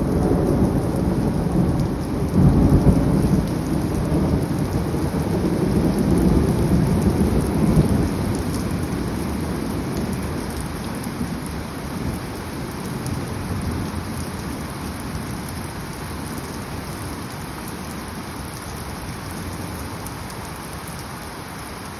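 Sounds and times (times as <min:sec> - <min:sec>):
thunder rumbling: 0:00.0 - 0:10.6
steady rain: 0:00.0 - 0:21.9.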